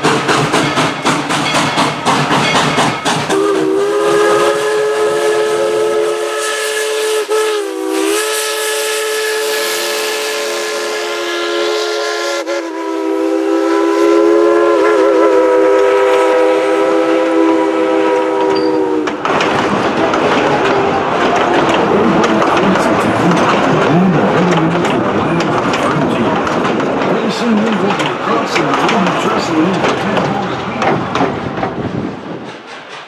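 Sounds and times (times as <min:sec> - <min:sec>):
noisy steam rush: 0:00.0 - 0:33.0
steam whistle chord: 0:03.3 - 0:19.1.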